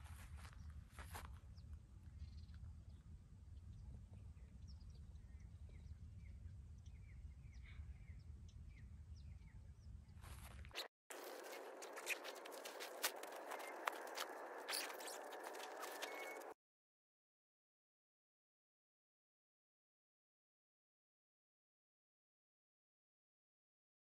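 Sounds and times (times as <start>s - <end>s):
faint bird chirps: 1.5s - 16.6s.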